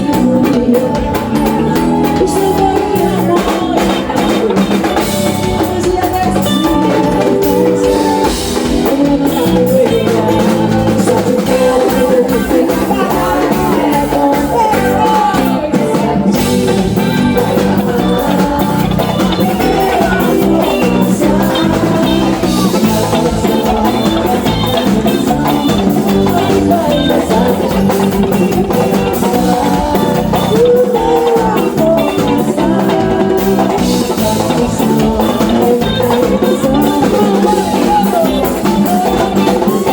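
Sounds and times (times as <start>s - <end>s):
drum kit and percussion: 0.0s - 39.9s
guitar: 0.0s - 39.9s
person singing: 0.0s - 39.9s.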